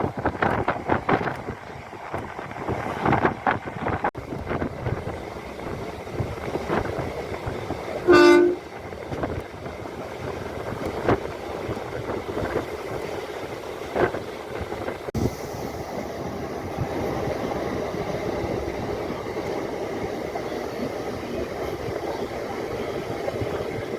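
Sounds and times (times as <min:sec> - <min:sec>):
electric train clattering: 0:00.2 - 0:23.9
train horn blast: 0:08.0 - 0:08.7.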